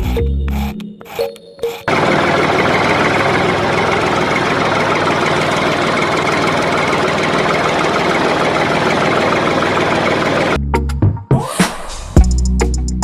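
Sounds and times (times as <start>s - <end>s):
small motor running: 1.9s - 10.6s.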